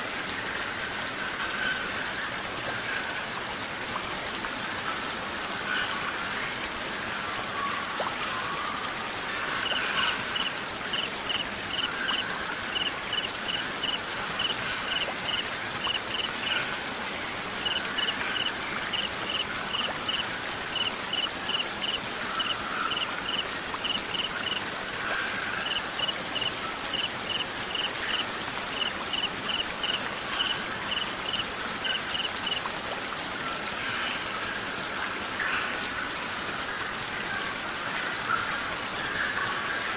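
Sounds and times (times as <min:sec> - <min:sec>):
rain falling: 0:00.0 - 0:39.9
crickets chirping: 0:09.6 - 0:16.3, 0:17.6 - 0:24.6, 0:25.6 - 0:32.6.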